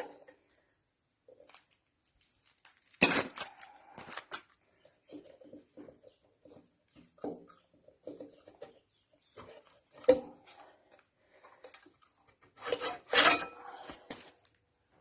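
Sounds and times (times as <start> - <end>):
metal tools clinking and scraping: 11.4 - 14.1.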